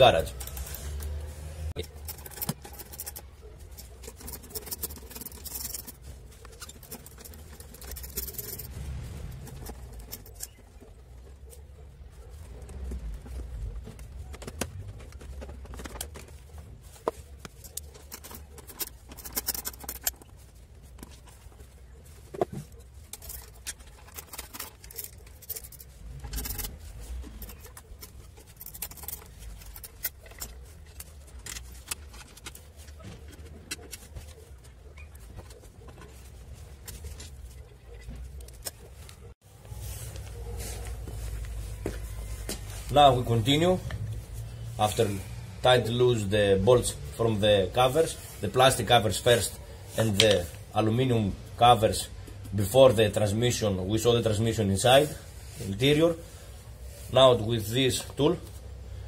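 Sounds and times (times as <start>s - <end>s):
plastic being handled: 0.0s - 59.0s.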